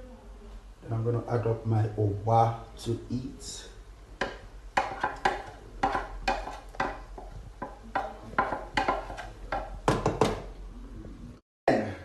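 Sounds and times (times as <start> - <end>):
utensils knocking against a pot: 4.2 - 10.4.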